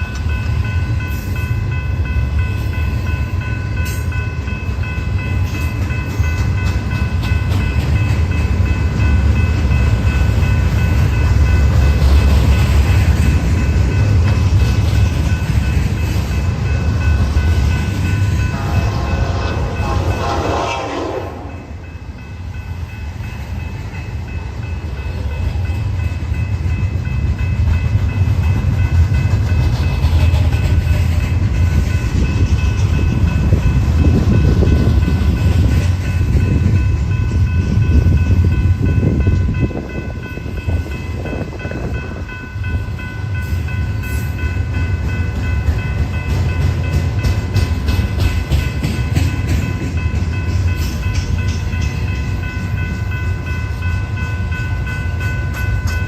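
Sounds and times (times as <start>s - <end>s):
train rumbling past: 0.0s - 56.0s
train horn: 18.4s - 21.9s.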